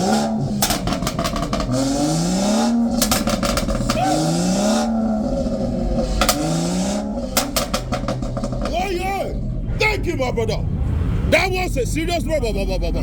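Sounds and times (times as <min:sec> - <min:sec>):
exhaust pops and crackles: 0:00.0 - 0:09.7
car engine revving: 0:00.0 - 0:12.0.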